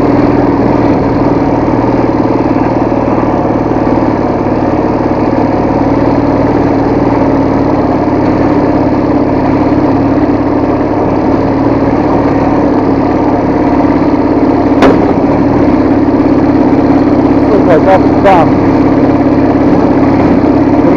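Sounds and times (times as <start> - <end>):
motorcycle engine running: 0.0 - 20.9
sharp knock: 14.8 - 15.2.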